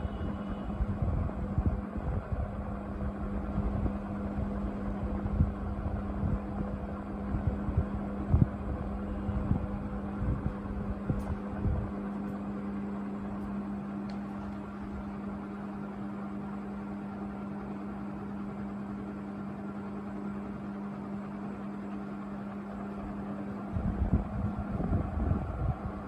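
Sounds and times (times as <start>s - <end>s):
air rushing from fan blades: 0.0s - 15.6s, 22.6s - 26.0s
ceiling fan motor humming: 0.0s - 26.0s.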